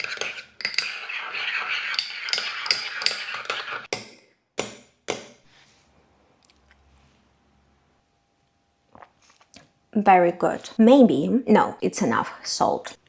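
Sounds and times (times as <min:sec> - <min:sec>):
utensil stirring sauce in bowl: 0:00.0 - 0:04.0.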